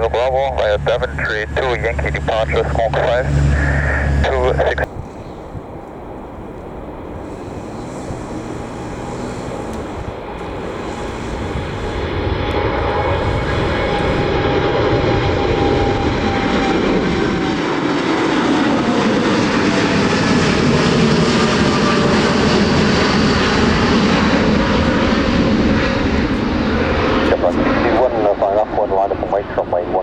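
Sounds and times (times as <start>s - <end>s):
jet engines roaring: 0.0s - 30.0s.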